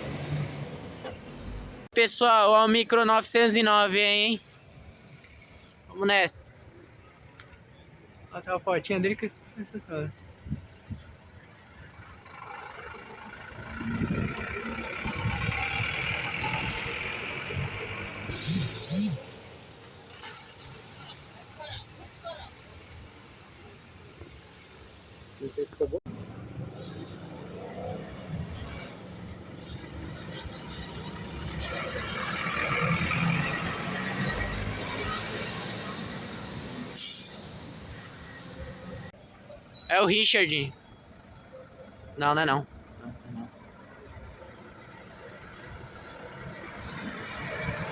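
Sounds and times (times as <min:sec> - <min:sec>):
bus driving past: 0:00.0 - 0:01.9, 0:10.2 - 0:25.2, 0:26.1 - 0:39.9, 0:40.6 - 0:47.9
minibus engine running: 0:09.4 - 0:20.2, 0:28.4 - 0:47.9.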